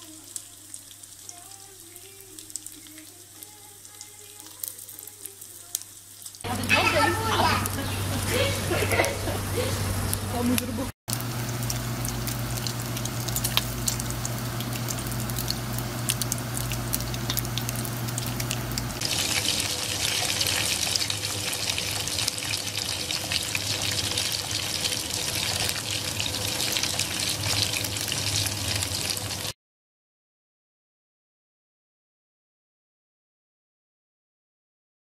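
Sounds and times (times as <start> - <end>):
food sizzling in a pan: 0.0 - 29.6
steady low hum: 6.5 - 29.5.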